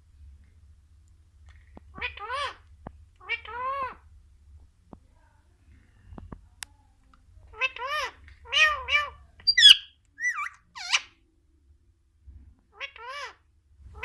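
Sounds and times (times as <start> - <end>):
parrot imitating cat meow: 7.6 - 11.1
parrot sharp calls: 7.6 - 11.1.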